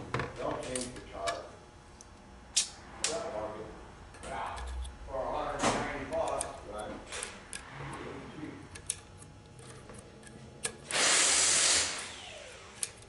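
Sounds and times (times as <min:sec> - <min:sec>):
pressurized air hiss: 0:10.9 - 0:12.1.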